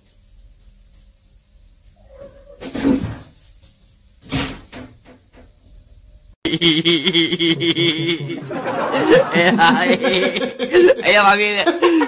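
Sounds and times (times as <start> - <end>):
cat making sudden loud noises: 2.0 - 3.2.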